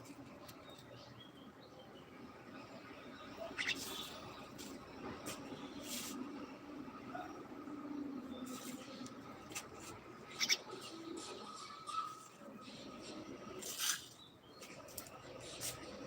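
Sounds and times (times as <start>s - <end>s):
pet birds chirping: 3.2s - 4.4s, 10.2s - 13.1s.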